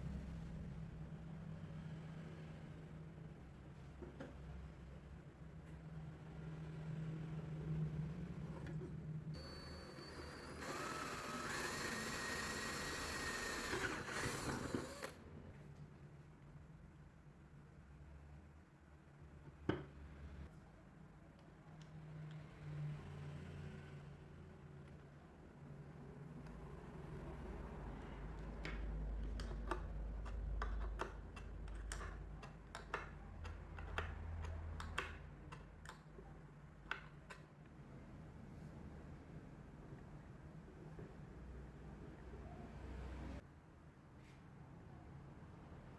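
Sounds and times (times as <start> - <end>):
electric power tool whine: 9.4 - 15.2.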